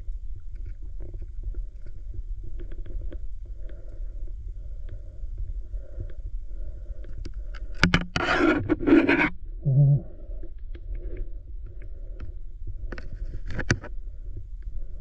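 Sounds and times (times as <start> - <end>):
underwater low rumble: 0.0 - 15.0
short low hum: 7.8 - 12.1.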